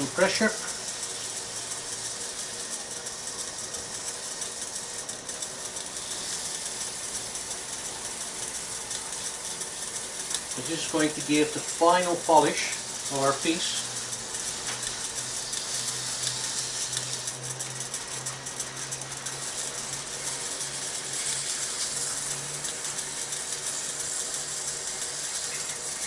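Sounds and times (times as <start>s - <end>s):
paper towel rubbing spinning wood: 0.0s - 26.0s
wood lathe motor hum: 0.0s - 26.0s.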